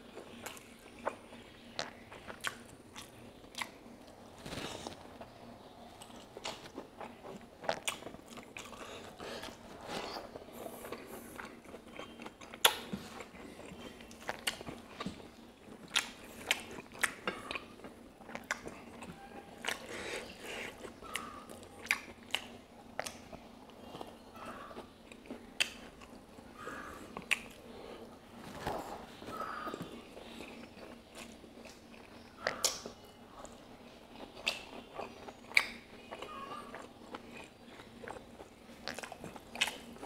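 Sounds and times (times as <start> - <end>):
chewing and wet lip-smacking: 6.0 - 9.6, 10.8 - 24.2, 27.1 - 27.6, 29.7 - 40.0.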